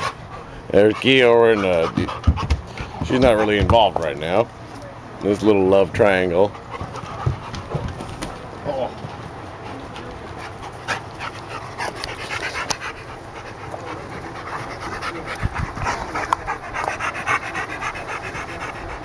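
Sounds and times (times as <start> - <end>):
dogs panting: 0.0 - 4.6, 5.2 - 19.0.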